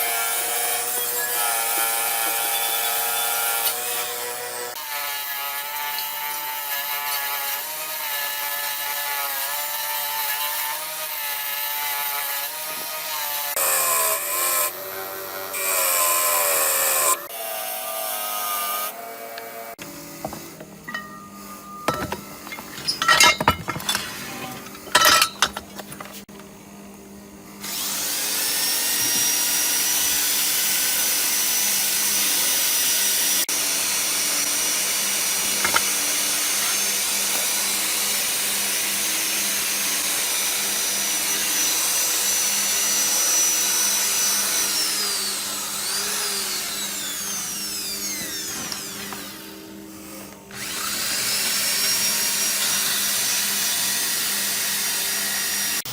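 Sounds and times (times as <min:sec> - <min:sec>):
electric power tool whining: 0:27.6 - 0:55.9.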